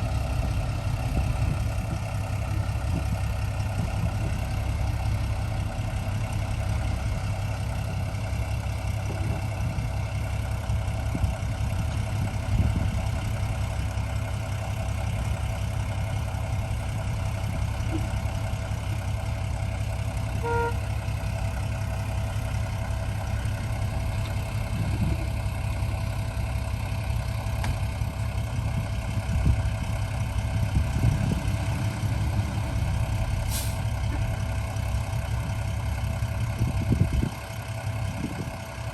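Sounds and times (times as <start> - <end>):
heavy diesel engines rumbling: 0.0 - 38.9
short beep: 20.4 - 20.8.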